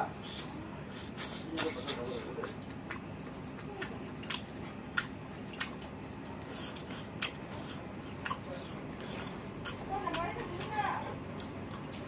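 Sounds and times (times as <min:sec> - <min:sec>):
man chewing food: 0:00.0 - 0:12.0
wet mouth smacks: 0:01.2 - 0:09.8.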